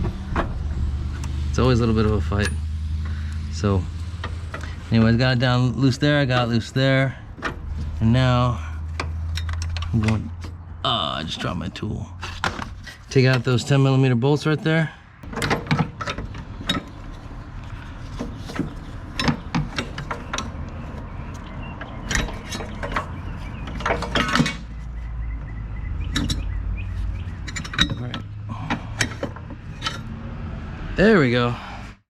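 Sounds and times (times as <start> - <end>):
metal tools clinking: 8.9 - 20.6, 21.2 - 24.8, 26.1 - 30.1.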